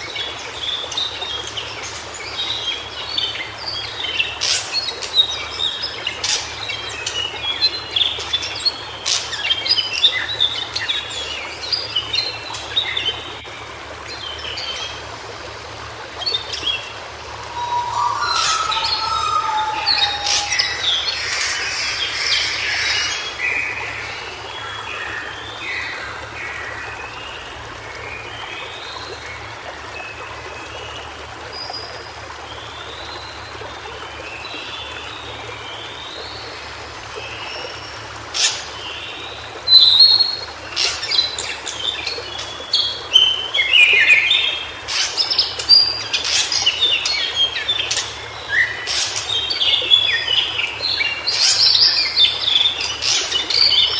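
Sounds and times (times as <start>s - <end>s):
bird singing high warbles: 16.1s - 27.4s, 37.3s - 53.9s.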